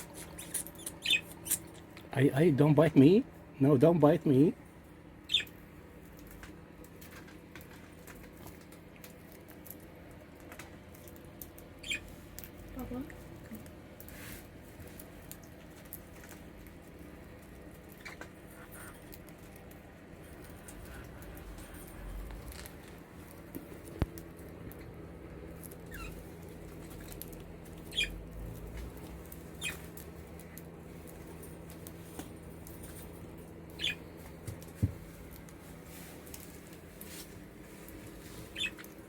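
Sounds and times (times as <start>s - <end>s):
faint steady hum: 0.0s - 39.0s
budgerigars chirping: 0.2s - 1.8s, 5.2s - 5.5s, 11.8s - 12.1s, 27.8s - 28.2s, 29.5s - 29.8s, 33.7s - 34.1s, 38.4s - 38.9s.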